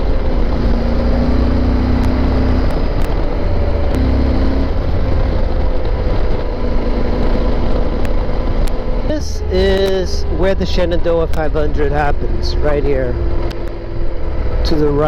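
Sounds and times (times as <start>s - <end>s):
motorcycle engine running: 0.0s - 15.0s
wind rush on microphone: 0.0s - 15.0s.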